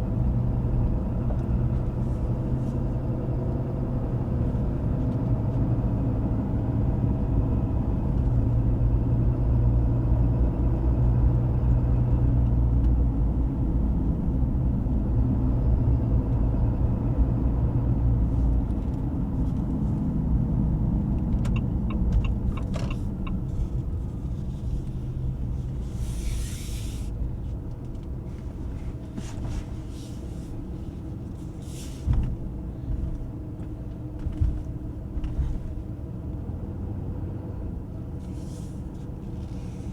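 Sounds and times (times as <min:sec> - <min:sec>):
road rumble: 0:00.0 - 0:39.9
diesel engine running: 0:13.2 - 0:39.9.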